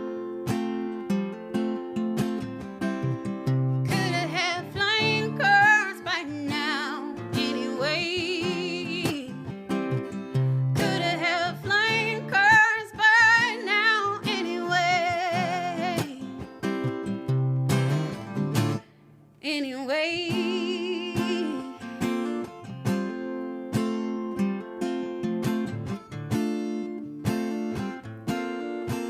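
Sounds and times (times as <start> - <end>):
strummed acoustic guitar: 0.0 - 29.0
woman singing with vibrato: 3.9 - 9.6, 10.4 - 16.5, 19.4 - 22.2.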